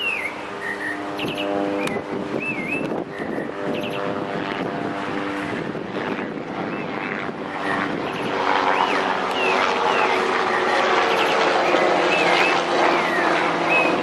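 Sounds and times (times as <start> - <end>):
train engine drone: 0.0 - 3.9
birds chirping: 0.0 - 4.2, 6.6 - 14.0.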